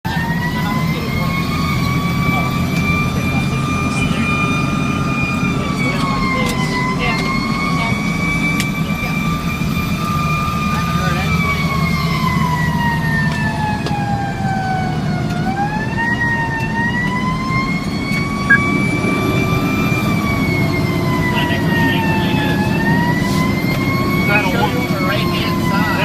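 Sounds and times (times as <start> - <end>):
fire engine siren wailing: 0.0 - 26.0
truck engine rumbling: 18.0 - 26.0.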